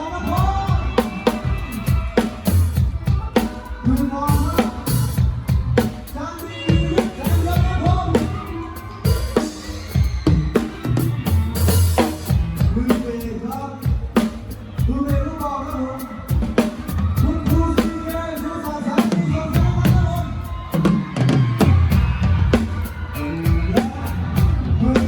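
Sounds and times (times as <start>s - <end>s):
live band playing: 0.0s - 25.0s
drum kit kick and snare: 0.2s - 25.0s.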